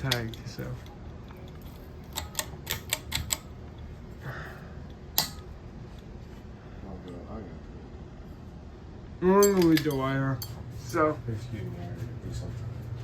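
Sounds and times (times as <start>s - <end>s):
hard objects clicking: 1.4s - 3.5s.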